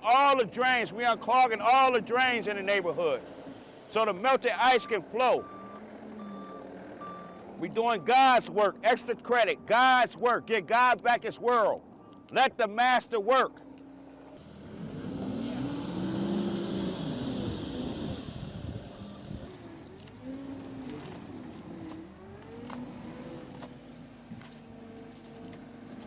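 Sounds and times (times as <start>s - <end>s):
engine running and revving: 4.9s - 8.0s, 13.7s - 26.0s.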